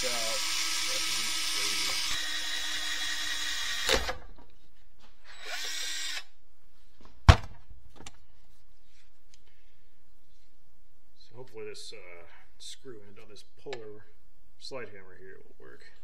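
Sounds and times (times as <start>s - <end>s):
power drill drilling: 0.0s - 4.3s, 5.2s - 6.3s.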